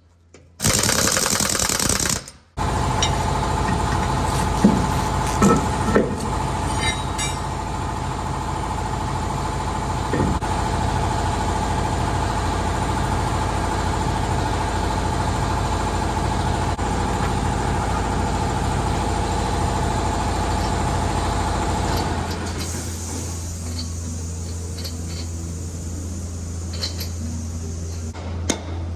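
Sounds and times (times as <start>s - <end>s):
low steady hum: 22.8s - 28.9s.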